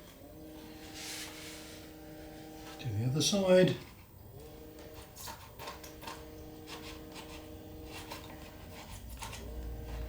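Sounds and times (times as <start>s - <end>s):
scraping and rubbing on balsa wood: 0.6s - 2.0s, 3.8s - 10.0s.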